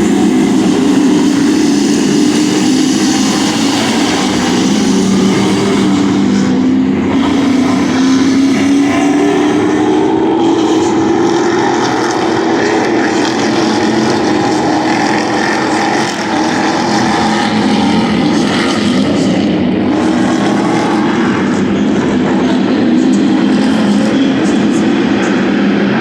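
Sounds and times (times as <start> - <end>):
racing truck engines running: 0.0 - 26.0.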